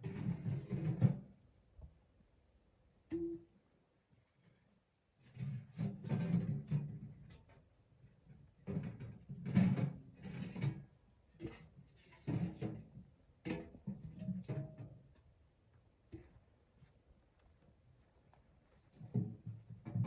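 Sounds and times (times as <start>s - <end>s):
objects knocking and scraping: 5.4s - 7.4s, 8.6s - 15.2s, 19.0s - 20.0s.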